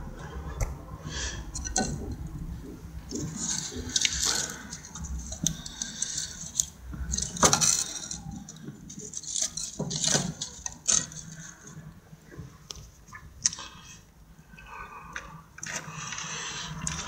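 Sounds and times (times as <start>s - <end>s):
objects clattering and rattling: 0.0s - 12.6s.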